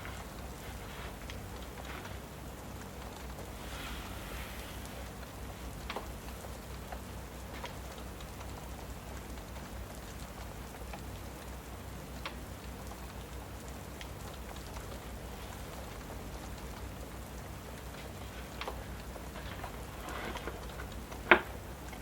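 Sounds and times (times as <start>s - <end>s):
steady rain falling: 0.0s - 22.0s
wood fire crackling: 0.0s - 22.0s.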